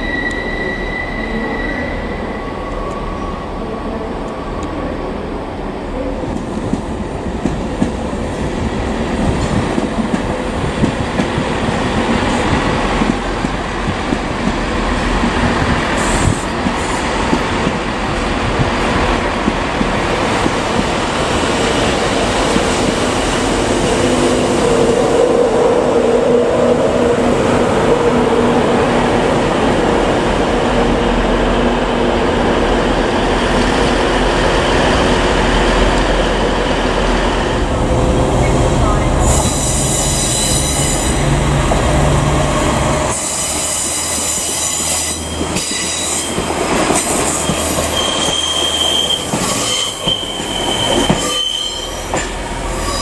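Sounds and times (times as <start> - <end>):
train wheel squeal: 0.0 - 3.4, 38.4 - 41.4, 43.1 - 53.0
train rumbling: 0.0 - 53.0.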